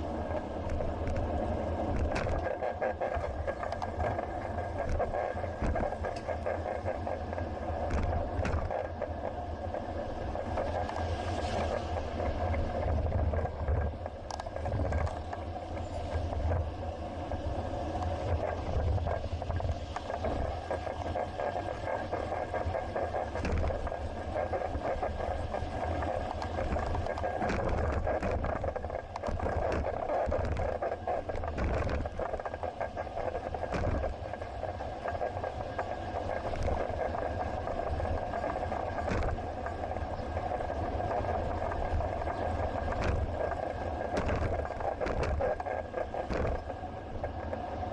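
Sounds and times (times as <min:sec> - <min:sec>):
rolling rumble: 0:00.0 - 0:47.9
wind noise: 0:00.0 - 0:47.9
small clicks and rattles: 0:00.2 - 0:47.9.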